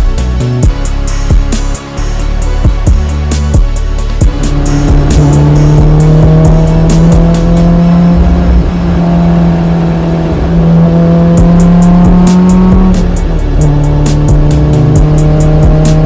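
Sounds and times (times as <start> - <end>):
car engine running hard: 3.8 - 16.0.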